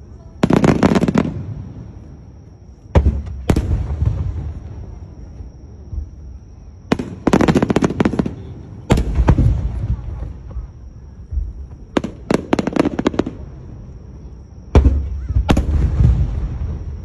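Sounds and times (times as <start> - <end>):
firework booms: 0.4 - 2.3, 2.9 - 17.0
firework crackling pops: 6.9 - 10.7, 14.7 - 16.6.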